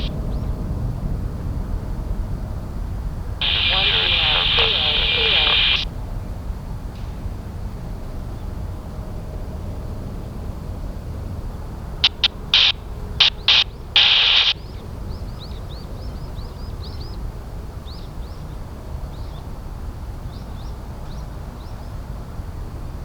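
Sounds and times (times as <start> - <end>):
low outdoor rumble: 3.4 - 5.8
radio static bursts: 3.4 - 5.8, 12.0 - 14.6.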